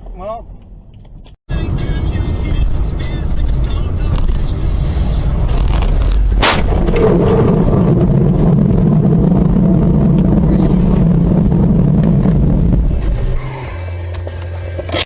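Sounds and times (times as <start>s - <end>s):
road vehicle rumble: 0.0s - 15.0s
sharp impact bang: 6.1s - 13.6s.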